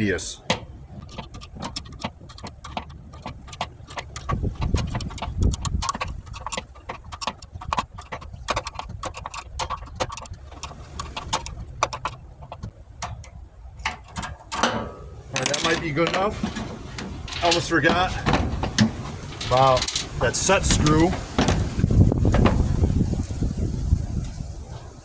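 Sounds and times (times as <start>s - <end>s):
wrench clicking on bolts: 0.5s - 21.7s
low knocks: 14.6s - 23.0s.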